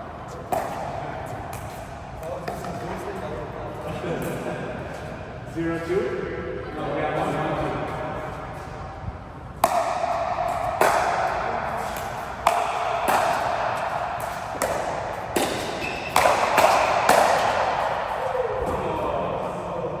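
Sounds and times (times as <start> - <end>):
sharp ball hits in a room: 0.3 - 3.0, 9.5 - 20.0.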